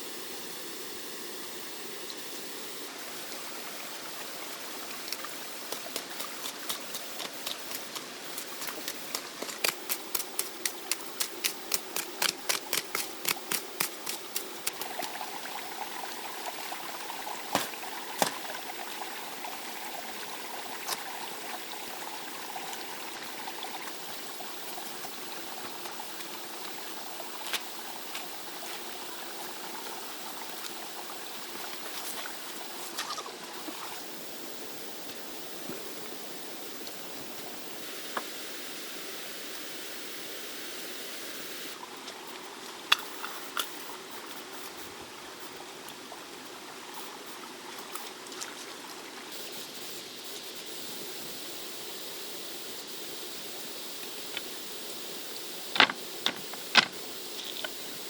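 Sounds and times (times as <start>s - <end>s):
stream water running: 0.0s - 58.0s
sharp knocks: 55.8s - 57.0s.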